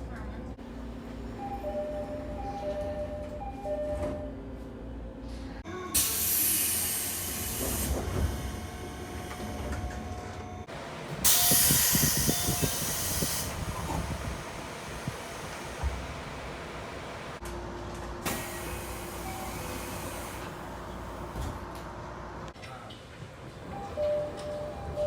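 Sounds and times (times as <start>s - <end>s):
pneumatic door air hiss: 6.0s - 8.6s, 11.2s - 14.1s, 18.3s - 20.5s.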